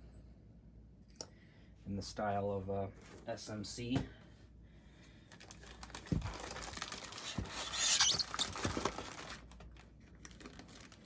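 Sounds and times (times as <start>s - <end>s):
packaging rustling and crinkling: 5.3s - 11.0s.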